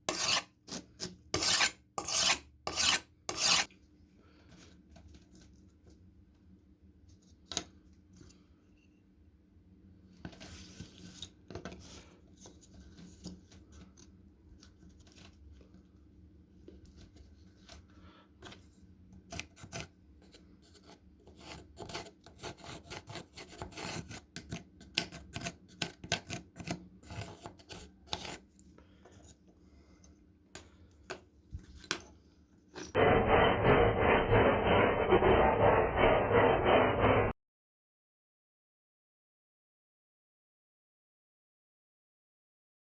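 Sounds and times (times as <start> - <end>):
abrasive scraping on knife blade: 0.0 - 3.7.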